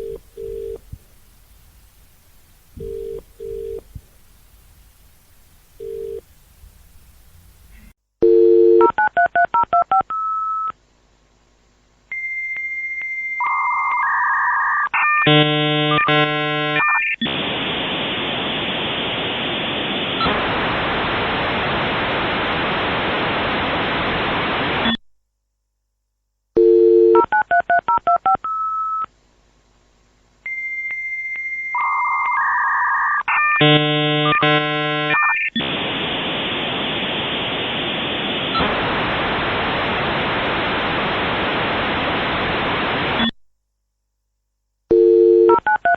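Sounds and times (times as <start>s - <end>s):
dial tone: 0.0s - 0.8s, 2.8s - 3.8s, 5.8s - 6.2s, 8.2s - 10.7s, 12.2s - 17.0s, 26.6s - 29.0s, 30.5s - 35.4s, 44.9s - 45.9s
loud modem hiss: 0.0s - 8.0s, 15.3s - 25.0s, 33.3s - 43.4s
warbling modem handshake tones: 2.8s - 3.9s, 5.8s - 6.2s, 12.2s - 20.4s, 30.5s - 39.4s
modem answer tone: 13.4s - 17.0s, 31.8s - 35.4s.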